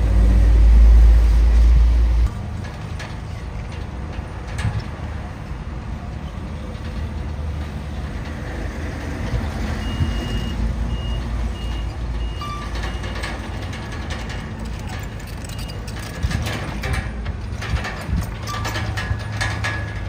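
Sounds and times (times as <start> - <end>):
diesel engine rumbling: 0.0 - 20.0
reversing alarm beeping: 9.8 - 13.2.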